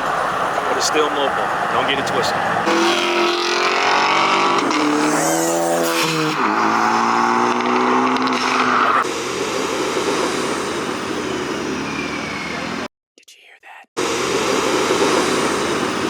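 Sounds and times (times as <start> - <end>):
car engine accelerating hard: 0.0 - 12.9, 14.0 - 16.0.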